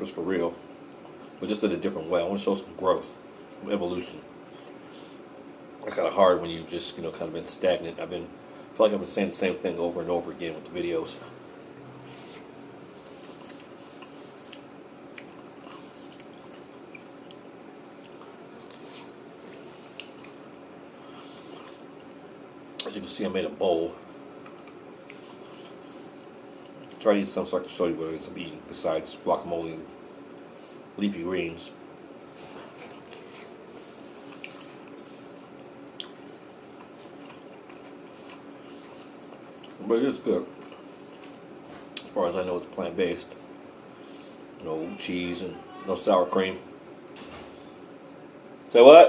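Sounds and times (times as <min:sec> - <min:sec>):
steady background hum: 0:00.0 - 0:49.0
person chewing soft food: 0:00.7 - 0:01.4, 0:04.4 - 0:05.2, 0:11.2 - 0:22.9, 0:23.9 - 0:27.0, 0:30.0 - 0:30.9, 0:32.2 - 0:42.2.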